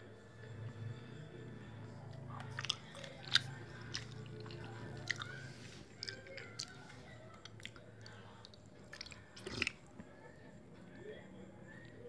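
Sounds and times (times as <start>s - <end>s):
person chewing: 2.3s - 10.0s.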